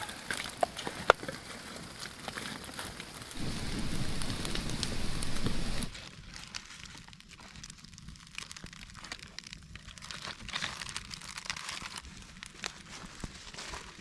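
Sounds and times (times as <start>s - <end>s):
campfire crackling and popping: 0.0s - 13.4s
steady noise: 3.4s - 6.0s.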